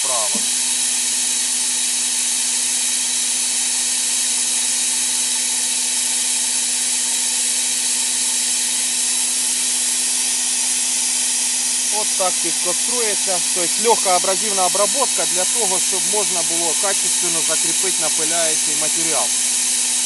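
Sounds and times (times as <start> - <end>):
abrasive blasting jet hissing: 0.0 - 1.1, 9.6 - 20.0
steady hum: 0.0 - 1.8, 8.1 - 20.0.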